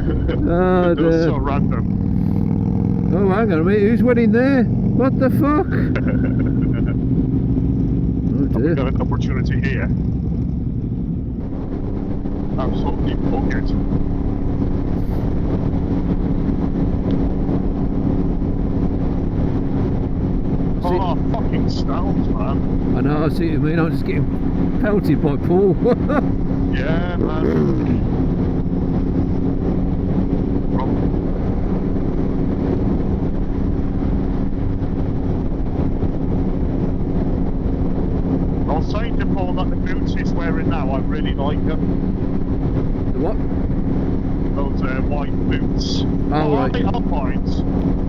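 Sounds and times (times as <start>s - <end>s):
motorcycle engine cruising: 0.0s - 48.0s
wind noise on microphone: 9.9s - 23.2s, 26.1s - 40.0s.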